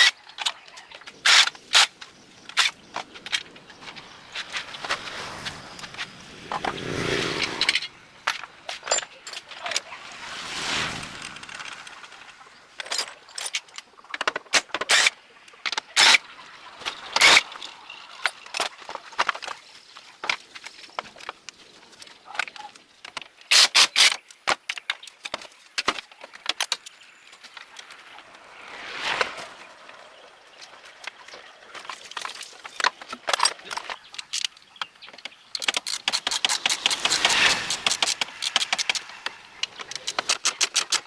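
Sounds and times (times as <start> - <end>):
noisy whoosh: 4.1 - 8.3, 9.8 - 12.7, 36.3 - 39.8
metal tools clinking: 7.6 - 9.9, 12.8 - 15.1, 16.8 - 19.3, 35.5 - 41.0.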